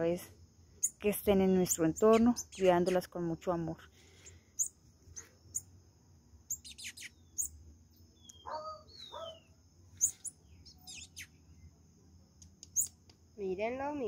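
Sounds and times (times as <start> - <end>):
birds chirping: 1.7 - 3.0, 6.4 - 11.8, 12.4 - 13.0.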